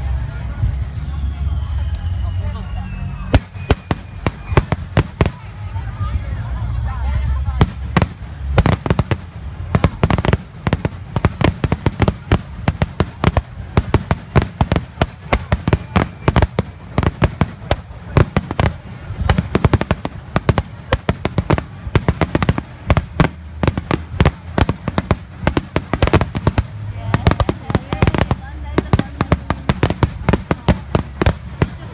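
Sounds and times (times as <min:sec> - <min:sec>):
fireworks bangs and cracks: 0:03.3 - 0:06.1, 0:07.3 - 0:31.9.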